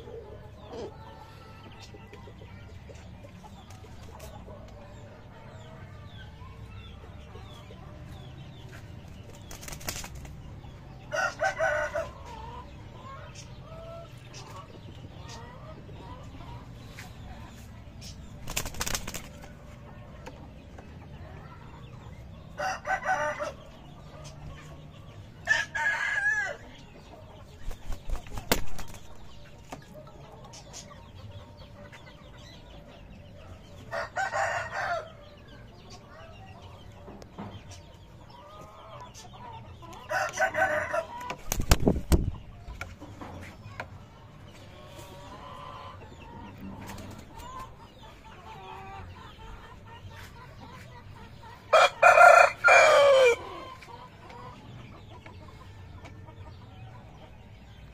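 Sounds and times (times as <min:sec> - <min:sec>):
chickens clucking: 0:00.0 - 0:57.9
roosters crowing: 0:11.0 - 0:12.6, 0:22.6 - 0:23.8, 0:25.4 - 0:26.8, 0:33.9 - 0:35.3, 0:40.1 - 0:41.4, 0:51.7 - 0:53.9.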